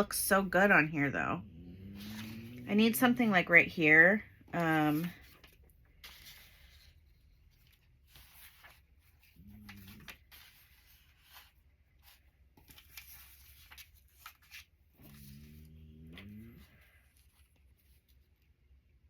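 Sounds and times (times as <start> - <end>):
paper rustling and clicking: 4.5 - 16.3.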